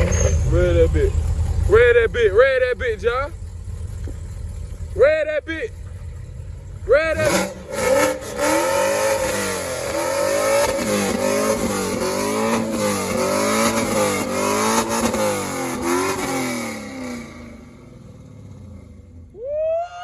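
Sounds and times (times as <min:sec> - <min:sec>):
car engine revving hard: 0:06.9 - 0:19.2.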